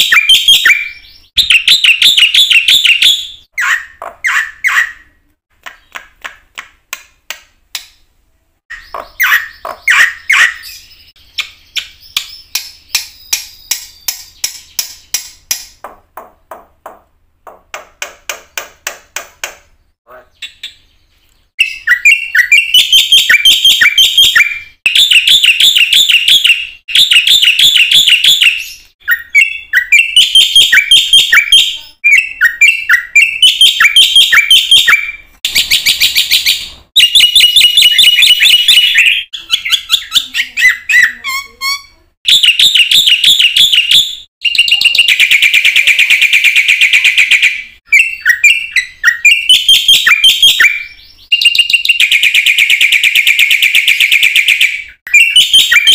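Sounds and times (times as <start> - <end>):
bird singing chattering and whistling: 0.0 - 5.1, 8.7 - 15.6, 20.2 - 55.9.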